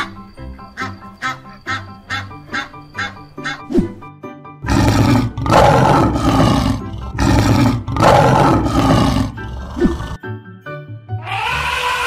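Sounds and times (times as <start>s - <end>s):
lion roaring: 4.6s - 10.2s.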